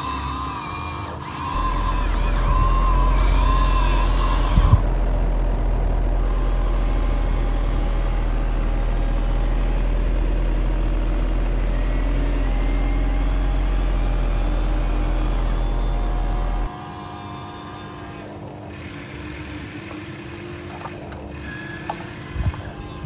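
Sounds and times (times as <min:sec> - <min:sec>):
thin motor whines: 0:00.0 - 0:23.0
loud low hum: 0:01.5 - 0:17.5.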